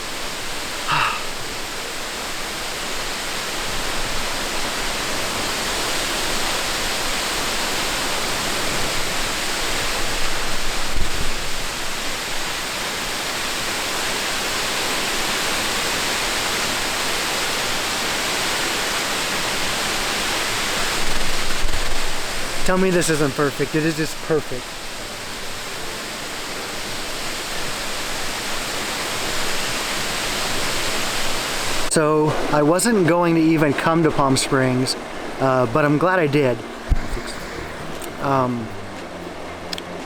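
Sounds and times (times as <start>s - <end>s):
waterfall rushing: 0.0s - 40.0s
low thump: 36.9s - 37.3s.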